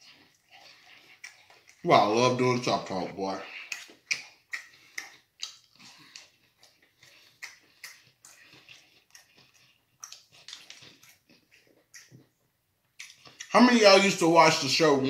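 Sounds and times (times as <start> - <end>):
chewing and lip-smacking: 0.0 - 13.6.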